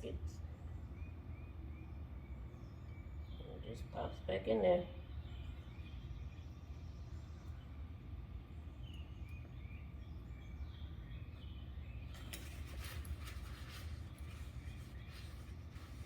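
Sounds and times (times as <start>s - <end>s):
faint bird chirps: 0.0s - 4.1s, 4.9s - 16.0s
low background rumble: 0.0s - 16.0s
rustling and scraping handling: 12.1s - 16.0s.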